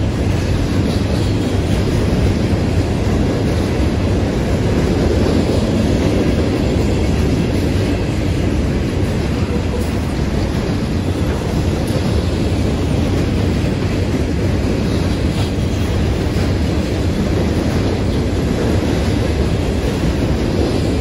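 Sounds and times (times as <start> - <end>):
freight train rumbling past: 0.0 - 21.0.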